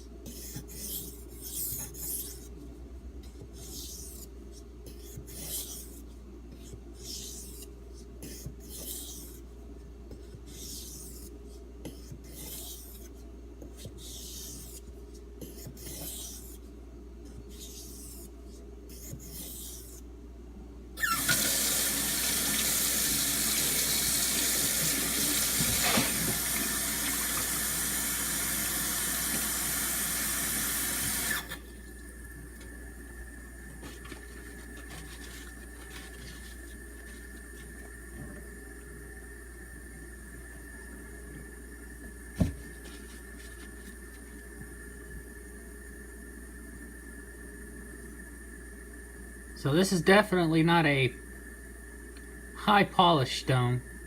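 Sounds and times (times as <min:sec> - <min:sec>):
water tap running: 0:21.0 - 0:31.5.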